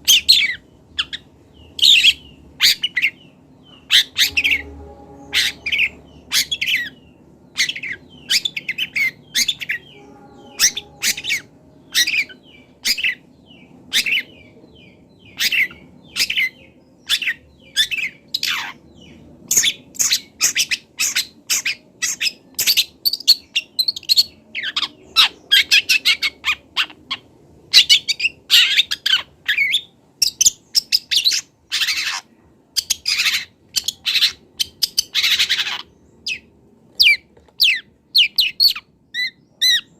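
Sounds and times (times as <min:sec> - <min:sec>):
shrike singing: 0:00.0 - 0:26.8.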